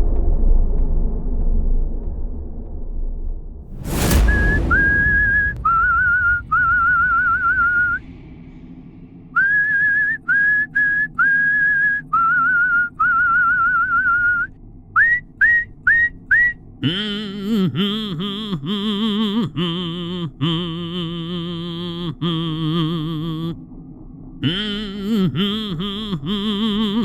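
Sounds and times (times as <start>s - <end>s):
loud crash: 3.7s - 10.8s
person whistling a tune: 4.3s - 8.0s, 9.4s - 18.3s.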